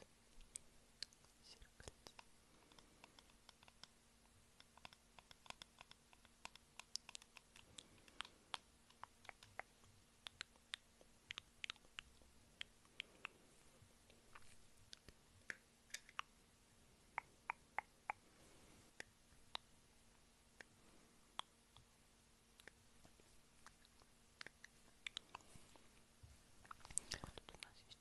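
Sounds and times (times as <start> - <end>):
wet chewing and lip smacks: 23.6 - 25.5.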